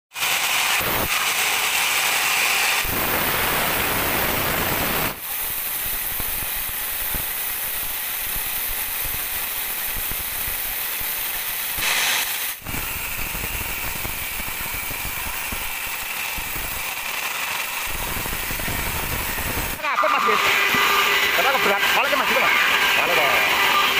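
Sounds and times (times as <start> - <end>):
band saw cutting log: 0.1 - 23.9.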